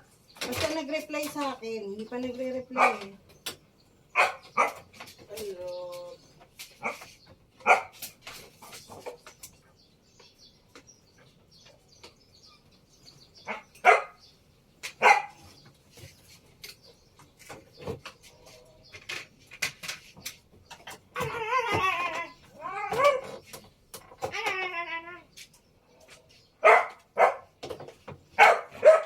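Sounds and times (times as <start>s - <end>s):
dog barking: 2.7s - 3.1s, 4.1s - 4.9s, 6.8s - 8.0s, 13.5s - 14.2s, 15.0s - 15.4s, 26.6s - 27.6s, 28.4s - 29.0s.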